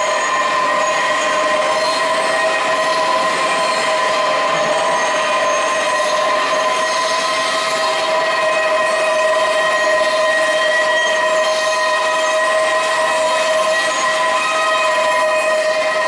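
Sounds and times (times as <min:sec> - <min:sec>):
band saw metallic squeal: 0:00.0 - 0:16.0.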